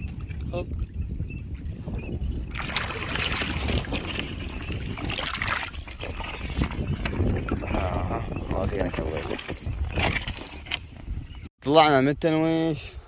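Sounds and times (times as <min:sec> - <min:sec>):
wind rumble on microphone: 0:00.0 - 0:11.5
water splashing around a boat: 0:02.4 - 0:10.2.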